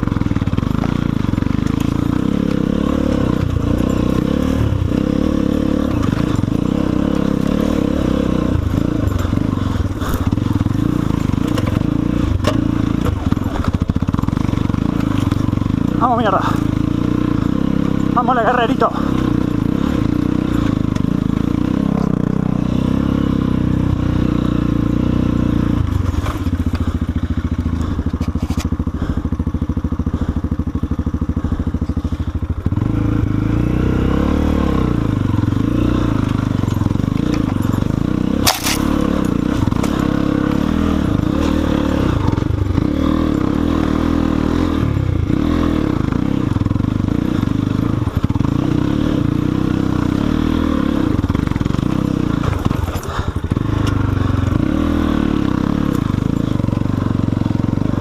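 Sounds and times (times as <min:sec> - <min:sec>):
dirt bike engine labouring: 0:00.0 - 0:58.0
sharp knock of bike on rock: 0:38.4 - 0:38.9.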